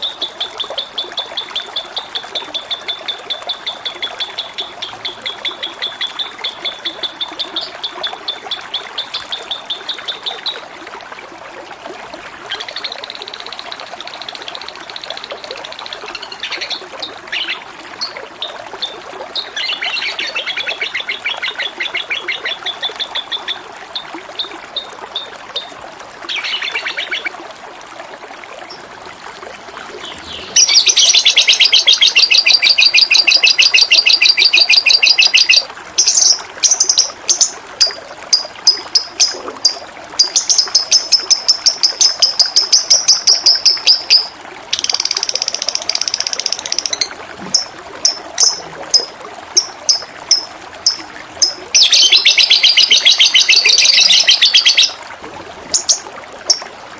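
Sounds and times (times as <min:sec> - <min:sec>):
trickle of running water: 0:00.0 - 0:56.9
songbirds chirping trills: 0:29.8 - 0:39.4, 0:40.2 - 0:55.0
loud fast bird trill: 0:51.4 - 0:55.0.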